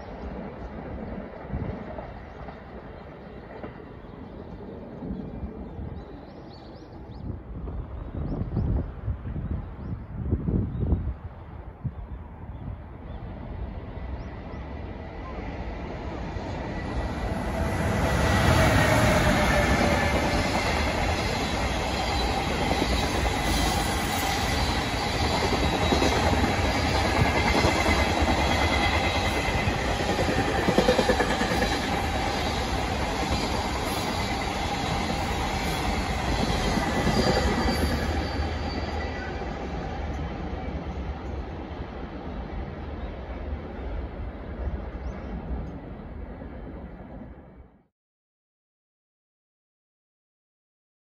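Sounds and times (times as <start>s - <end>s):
electric locomotive passing: 12.9s - 47.7s.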